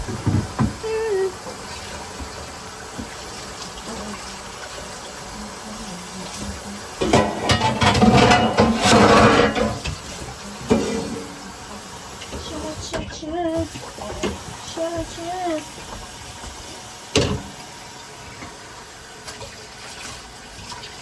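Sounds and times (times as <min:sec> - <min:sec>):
kitchen tap running water: 0:00.0 - 0:21.0
water splashing: 0:00.0 - 0:21.0
pot knocking: 0:07.0 - 0:10.0.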